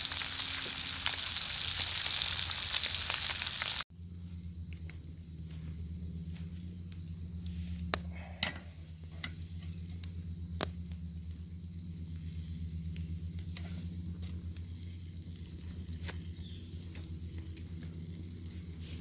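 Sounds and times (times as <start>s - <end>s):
fire crackling pops: 0.0s - 3.8s
bacon sizzling: 0.0s - 3.9s.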